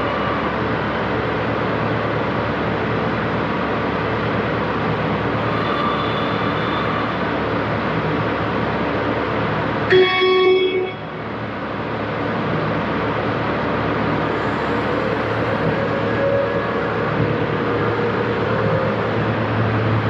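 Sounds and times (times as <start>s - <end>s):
electric truck humming: 13.6s - 20.0s.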